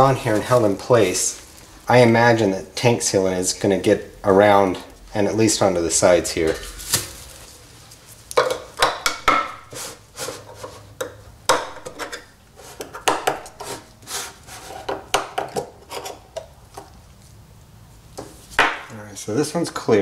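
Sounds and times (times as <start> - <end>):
metal cans bumping on workbench: 8.4 - 9.6
tool prying metal can lids: 8.4 - 9.7, 11.0 - 13.8.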